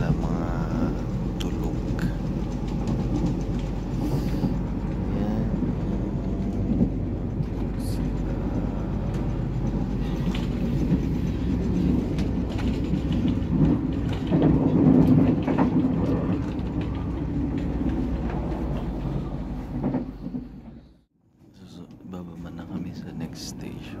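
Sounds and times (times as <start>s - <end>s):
train carriage rumble: 0.0s - 24.0s.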